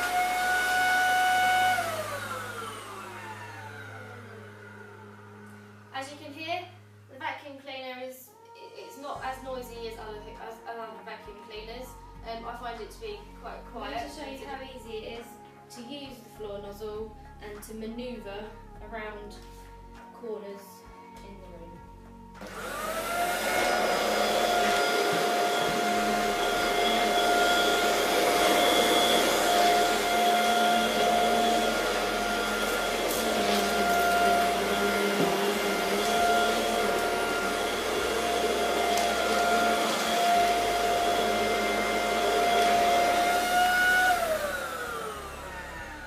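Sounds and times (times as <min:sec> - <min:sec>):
vacuum cleaner motor whine: 0:00.0 - 0:06.2, 0:22.4 - 0:46.0.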